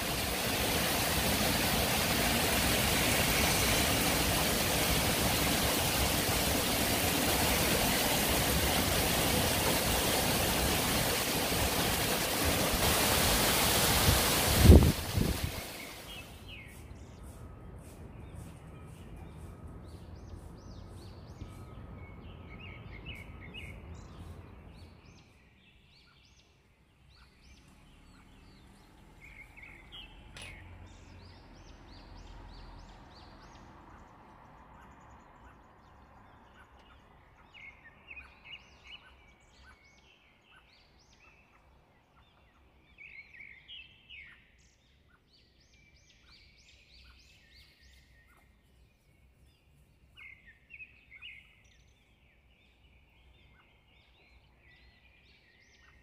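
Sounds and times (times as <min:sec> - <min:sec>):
birds chirping: 0:00.0 - 0:32.3.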